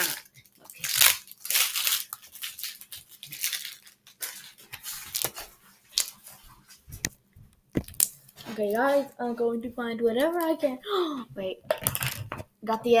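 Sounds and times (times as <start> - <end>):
rustling and crinkling: 0.3 - 10.6.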